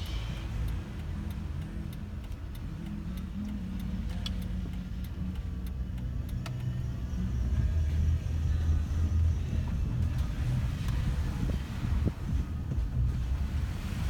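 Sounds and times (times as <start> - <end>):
faint ticks: 0.0 - 8.7
vehicle engine humming: 0.0 - 14.0.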